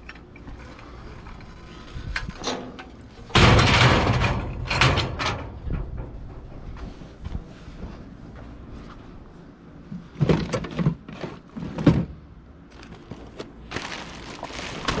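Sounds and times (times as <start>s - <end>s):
knocks and scrapes in dumpster: 1.5s - 8.0s, 10.0s - 12.3s.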